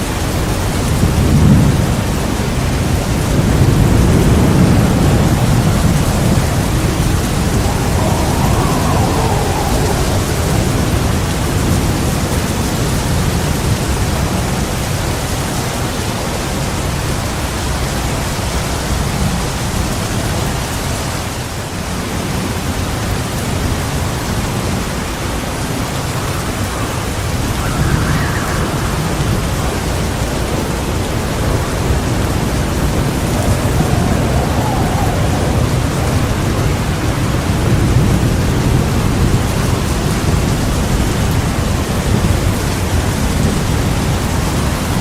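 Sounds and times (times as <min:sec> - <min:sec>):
heavy rain falling: 0:00.0 - 0:45.0
low thunder rumbling: 0:00.7 - 0:14.6, 0:24.6 - 0:45.0.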